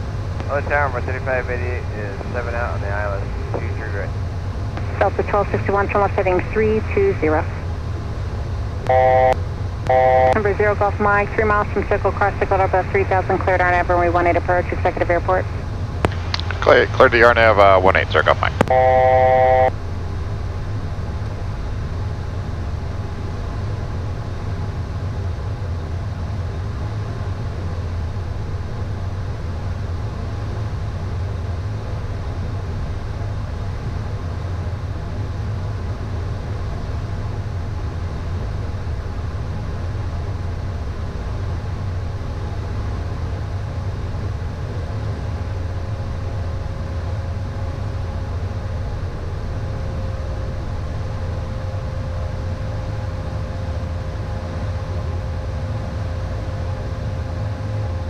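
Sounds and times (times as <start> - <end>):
jet cockpit rumbling drone: 0.0 - 58.0
faint steady tones: 0.4 - 20.0.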